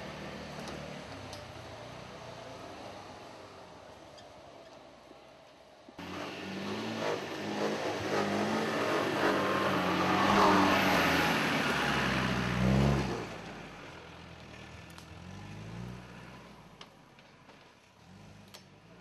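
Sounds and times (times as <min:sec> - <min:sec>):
off-road vehicle engine revving: 0:06.0 - 0:16.8, 0:18.0 - 0:19.0.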